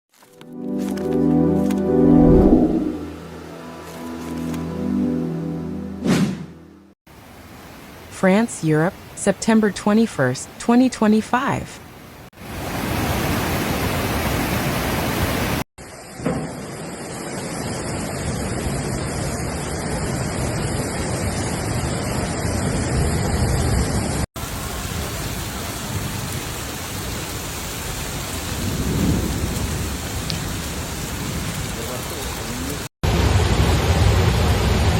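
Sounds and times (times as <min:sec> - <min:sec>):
heavy rain hissing: 0:12.4 - 0:34.9.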